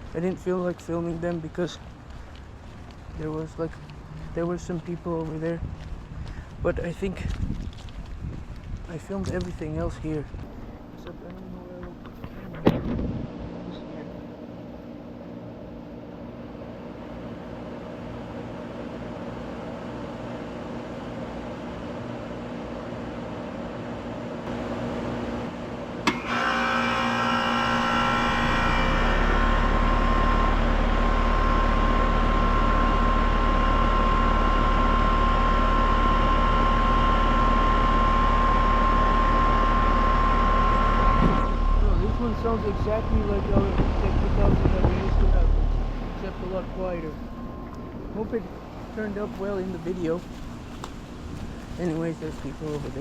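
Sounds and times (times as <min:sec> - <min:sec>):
air conditioner humming with whine: 0:00.0 - 0:53.0.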